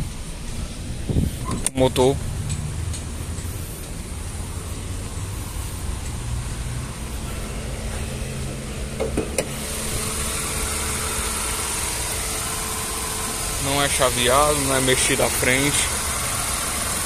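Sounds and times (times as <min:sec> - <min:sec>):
car engine idling: 0:00.0 - 0:17.0
car hood clicks and knock: 0:09.0 - 0:09.5.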